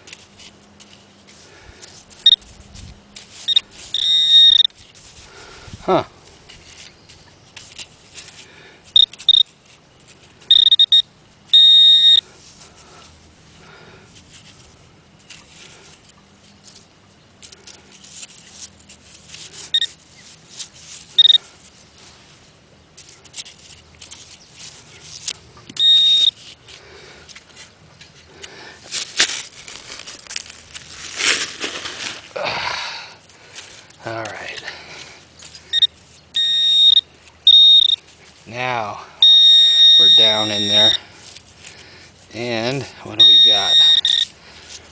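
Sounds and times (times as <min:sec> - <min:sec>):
hand digging in sand: 0:00.0 - 0:05.2, 0:17.4 - 0:32.4, 0:37.8 - 0:44.9
metal detector beeps: 0:02.2 - 0:02.4, 0:03.4 - 0:04.8, 0:09.0 - 0:09.5, 0:10.5 - 0:12.2, 0:19.7 - 0:20.0, 0:21.2 - 0:21.4, 0:25.7 - 0:26.4, 0:35.7 - 0:38.0, 0:39.2 - 0:41.0, 0:43.0 - 0:44.3.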